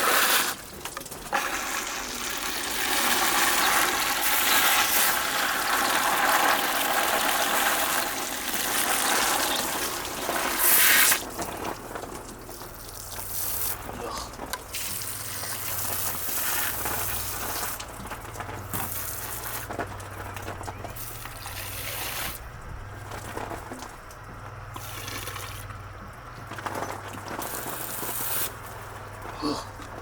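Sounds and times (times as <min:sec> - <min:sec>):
water running and spraying: 0:01.3 - 0:18.0, 0:18.6 - 0:19.7, 0:20.9 - 0:22.4, 0:24.7 - 0:25.7, 0:27.4 - 0:28.7.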